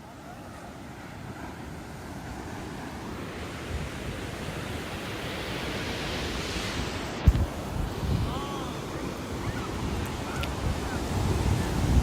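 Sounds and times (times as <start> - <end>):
ocean surf breaking: 0.0 - 12.0
wind buffeting microphone: 6.7 - 12.0.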